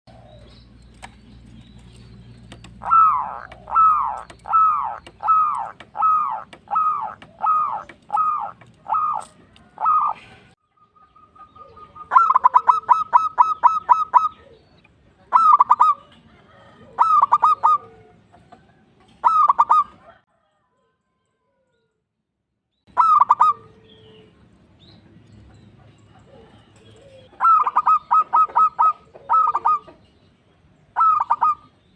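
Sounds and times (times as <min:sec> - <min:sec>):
dove cooing: 0:00.1 - 0:00.8, 0:02.5 - 0:10.6, 0:11.2 - 0:18.5, 0:19.1 - 0:20.2, 0:22.9 - 0:24.3, 0:25.8 - 0:30.1, 0:31.0 - 0:31.8
rapid rolling bird notes: 0:00.7 - 0:10.3.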